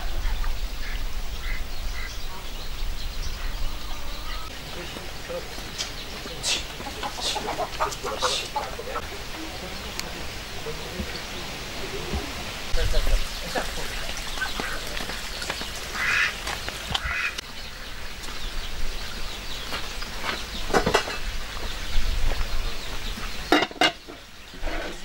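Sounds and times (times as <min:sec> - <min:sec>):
ducks quacking: 0:00.0 - 0:18.2.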